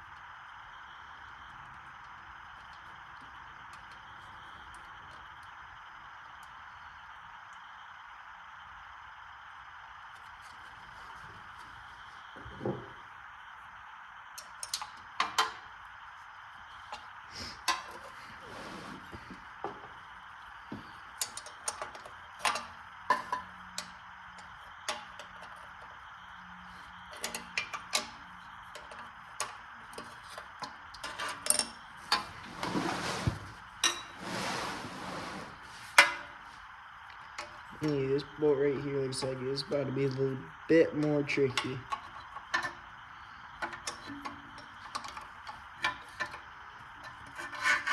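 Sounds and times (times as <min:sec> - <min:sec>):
metal scraping: 0:17.6 - 0:19.8, 0:31.0 - 0:36.6.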